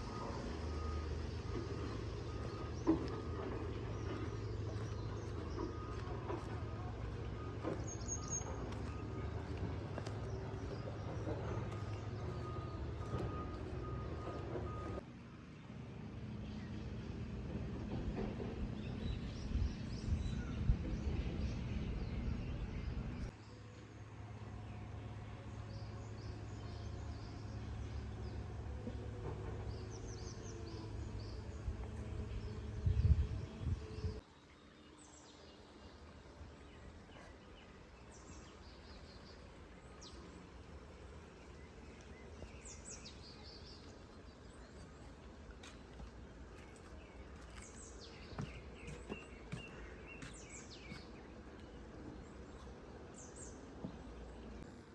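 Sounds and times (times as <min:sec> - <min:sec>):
birds chirping: 0:00.0 - 0:15.0, 0:18.8 - 0:54.7
low rumbling background: 0:00.0 - 0:15.1, 0:15.8 - 0:34.2.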